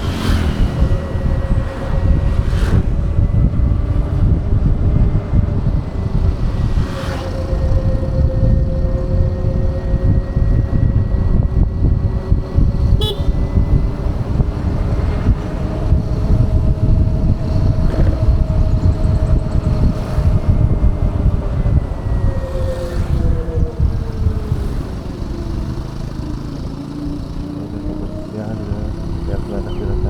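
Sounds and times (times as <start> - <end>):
electric scooter drive whine: 0.0 - 30.0
wind rumble on microphone: 0.0 - 30.0.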